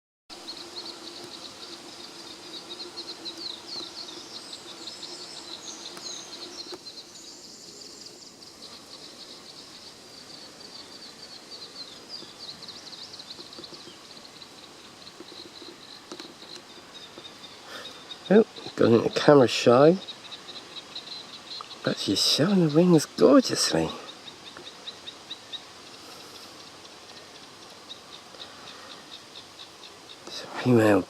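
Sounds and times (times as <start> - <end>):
birds chirping and trilling: 0.3 - 31.0
steady hiss: 0.3 - 31.0.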